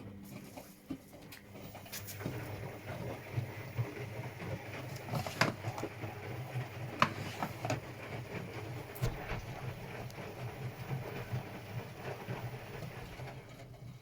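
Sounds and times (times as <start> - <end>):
washing machine drum humming: 0.0 - 14.0.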